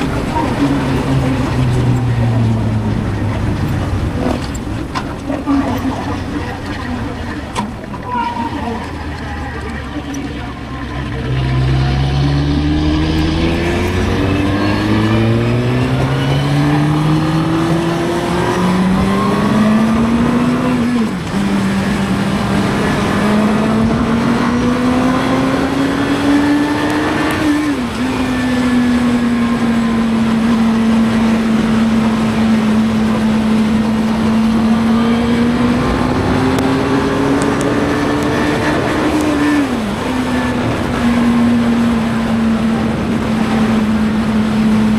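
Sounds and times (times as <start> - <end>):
motorcycle engine accelerating: 10.0 - 44.9
wind rush: 11.7 - 20.8.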